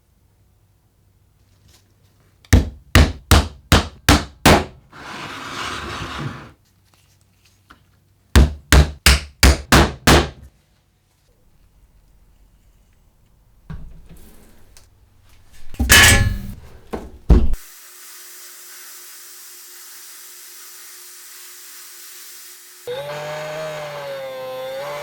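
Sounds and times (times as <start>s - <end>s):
hammer blows: 15.8s - 16.6s.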